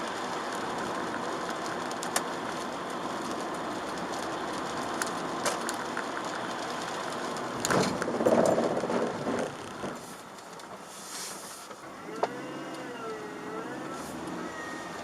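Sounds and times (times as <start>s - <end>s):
tyre noise on wet road: 0.0s - 15.0s
siren wailing: 12.0s - 15.0s.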